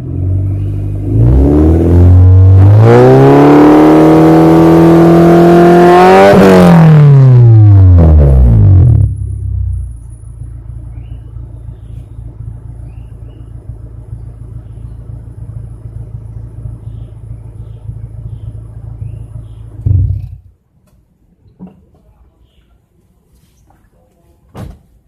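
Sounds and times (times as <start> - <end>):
car exhaust idling: 0.0 - 3.2, 7.0 - 20.6.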